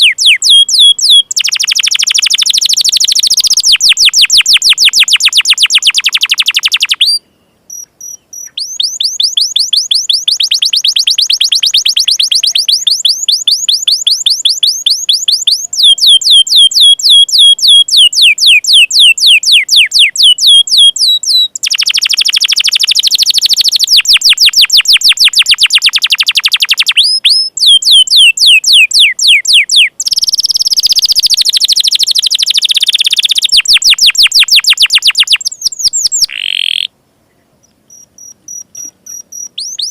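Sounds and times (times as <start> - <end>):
canary singing fast trills: 0.0 - 39.9.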